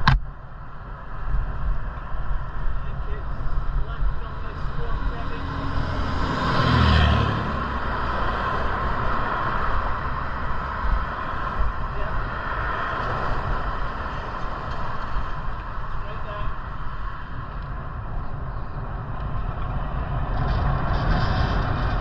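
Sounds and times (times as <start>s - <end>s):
low rumble: 0.0s - 22.0s
wind on microphone: 0.0s - 22.0s.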